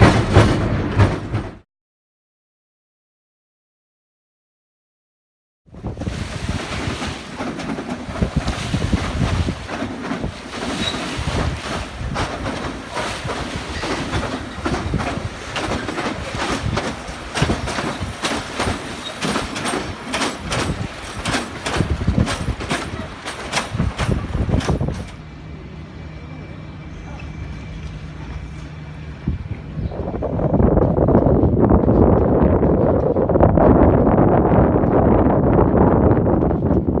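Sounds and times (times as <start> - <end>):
electric train rumbling: 0.0 - 1.6, 5.8 - 37.0
wheels clacking over rail joints: 0.0 - 1.6, 5.8 - 25.5.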